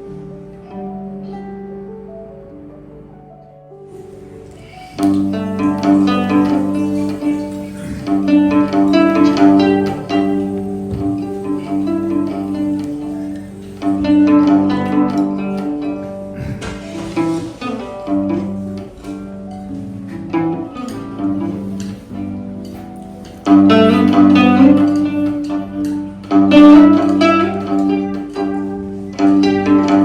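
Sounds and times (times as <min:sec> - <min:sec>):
plucked string melody: 0:00.0 - 0:30.0
held low notes: 0:04.2 - 0:19.6.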